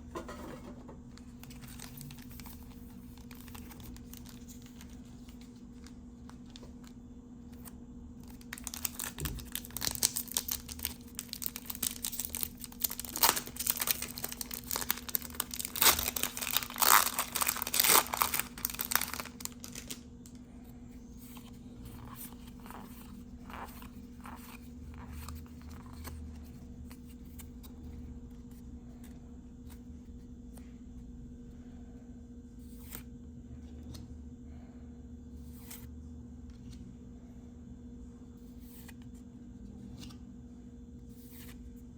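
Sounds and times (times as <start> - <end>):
faint steady hum: 0.0 - 41.9
foil wrapper tearing and crinkling: 8.2 - 20.0.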